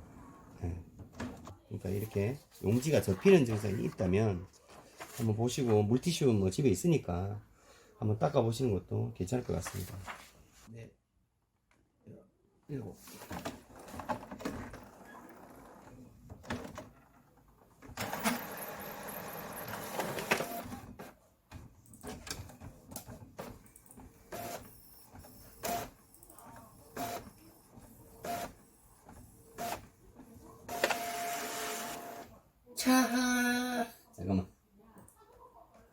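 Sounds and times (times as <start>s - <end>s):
thin printer whine: 17.9s - 21.0s, 30.6s - 32.3s
inkjet printer running: 18.0s - 20.9s, 24.2s - 29.9s, 30.5s - 32.3s.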